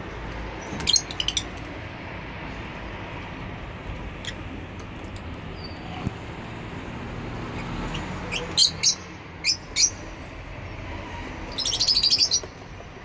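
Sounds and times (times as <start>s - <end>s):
lovebirds chirping: 7.7s - 10.1s, 11.5s - 12.6s.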